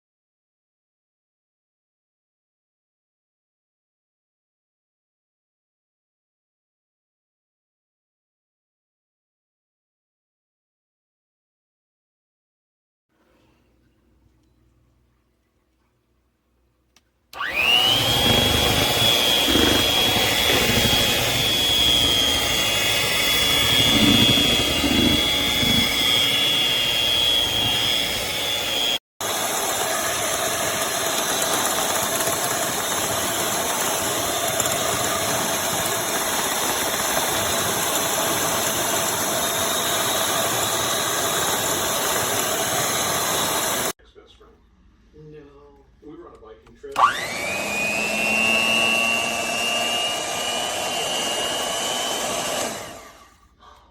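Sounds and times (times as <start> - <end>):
hand mixer motor whining: 17.4 - 43.9, 47.0 - 53.4
steady whirring: 17.4 - 43.9, 46.9 - 53.3.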